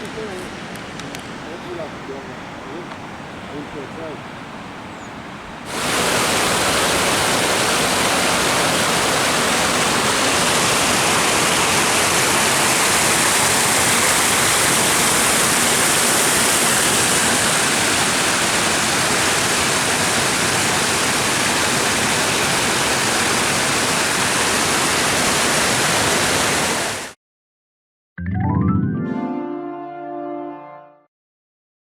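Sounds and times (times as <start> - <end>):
waterfall rushing: 5.7 - 27.2.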